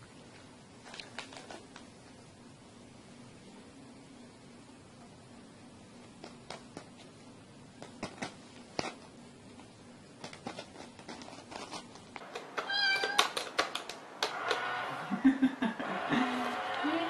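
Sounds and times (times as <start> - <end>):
cat meowing: 12.6 - 13.4.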